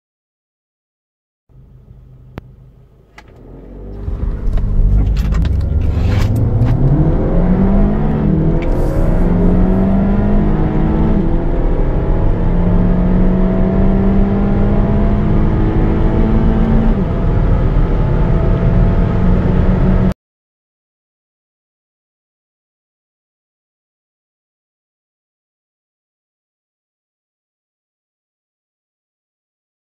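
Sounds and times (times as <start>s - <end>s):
car engine accelerating hard: 1.5s - 20.2s
clicks: 2.3s - 7.1s.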